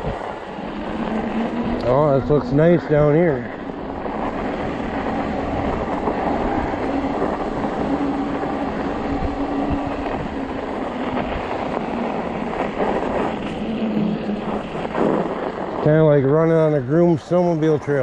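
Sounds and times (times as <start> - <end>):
electric motor hum: 0.0 - 16.0
tires crunching on snow: 0.0 - 18.0.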